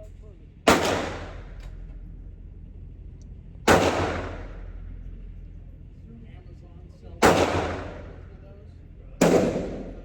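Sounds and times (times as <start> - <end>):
steady low hum: 0.0 - 10.0
pistol shot: 0.7 - 1.5, 3.7 - 4.6, 7.2 - 8.2, 9.2 - 10.0.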